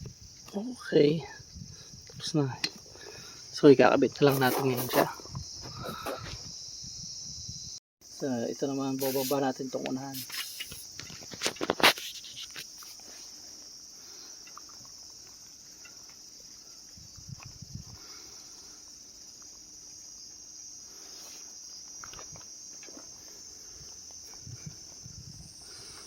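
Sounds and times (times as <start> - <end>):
insects chirring: 0.0 - 26.0
bike being handled: 9.0 - 13.2.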